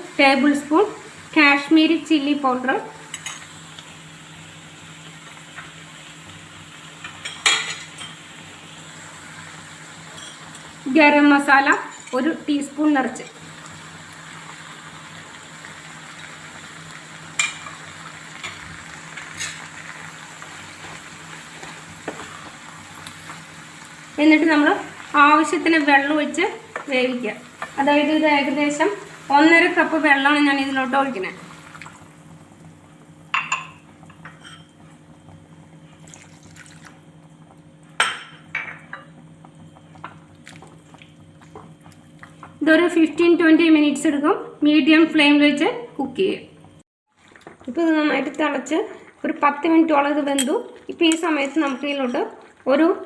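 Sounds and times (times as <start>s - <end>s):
masala sizzling in a pan: 0.0s - 53.0s
water poured into a pan: 36.0s - 37.0s.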